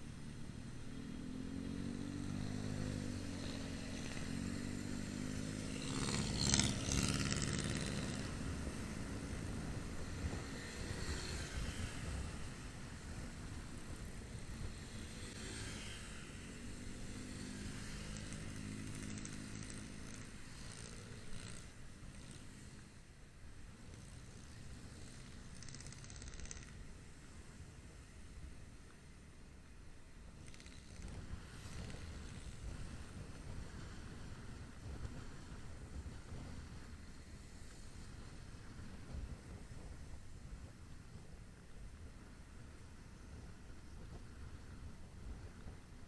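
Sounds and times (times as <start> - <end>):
motorcycle engine running: 0.0 - 23.1.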